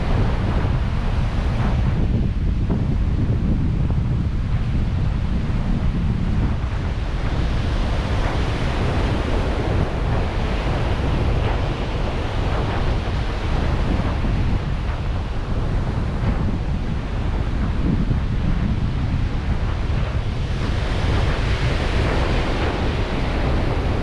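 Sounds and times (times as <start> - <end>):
wind buffeting microphone: 0.0 - 24.0
surf washing onto shore: 6.6 - 24.0.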